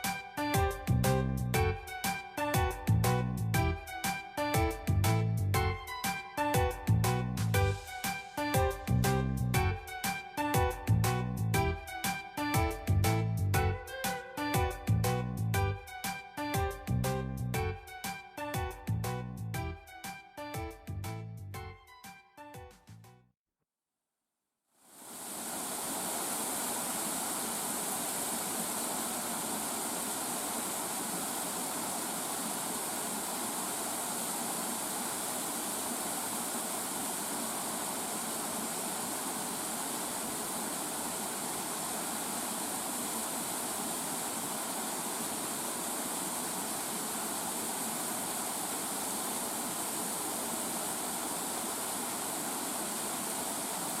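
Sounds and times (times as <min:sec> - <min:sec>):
waterfalls rushing: 0:25.0 - 0:54.0.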